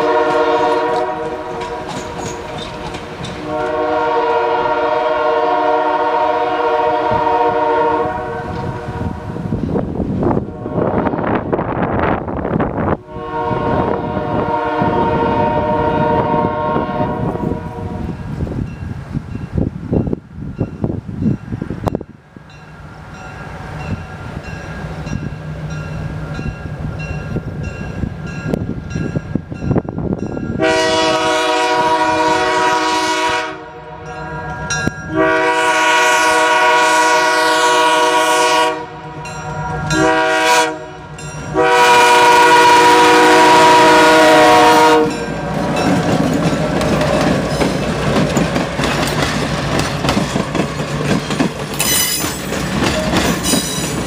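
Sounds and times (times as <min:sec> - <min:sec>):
train air horn: 0:00.0 - 0:02.1, 0:03.4 - 0:09.4, 0:10.4 - 0:11.4, 0:13.0 - 0:18.2, 0:30.6 - 0:34.2, 0:35.1 - 0:45.5
train wheels clattering: 0:00.3 - 0:04.4, 0:45.0 - 0:54.0
diesel locomotive engine running: 0:37.8 - 0:54.0.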